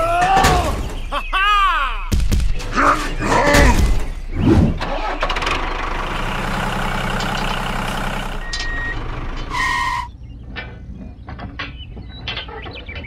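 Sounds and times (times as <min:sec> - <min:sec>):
tractor engine idling: 0:04.8 - 0:10.1.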